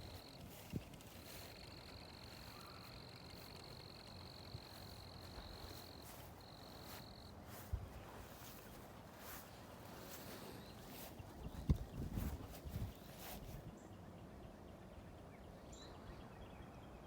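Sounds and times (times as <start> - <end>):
high-pitched insect trilling: 1.1 - 7.2.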